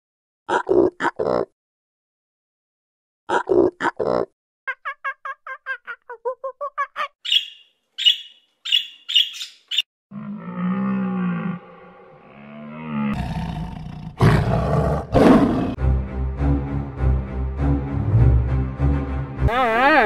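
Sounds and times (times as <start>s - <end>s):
gibbon hooting and whooping: 4.7s - 7.6s.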